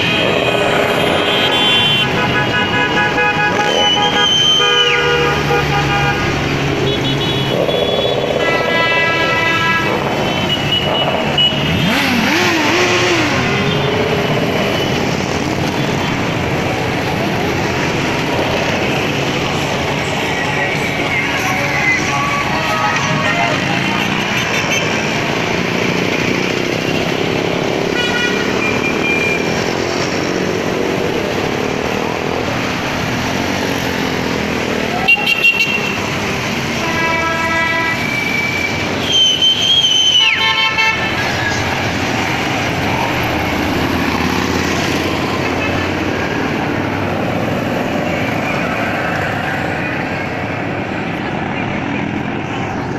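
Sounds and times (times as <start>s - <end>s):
horns honking: 0.0s - 16.8s, 18.7s - 29.8s, 34.8s - 42.5s
motorcycle engines passing: 0.0s - 52.9s.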